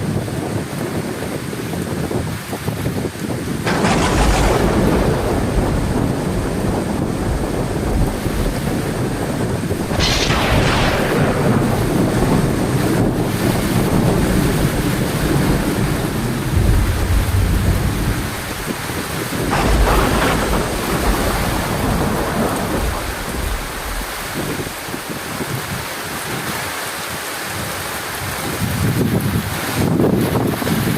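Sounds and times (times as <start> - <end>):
heavy rain falling: 0.0 - 30.9
thunder cracks and rumbling: 3.1 - 26.7.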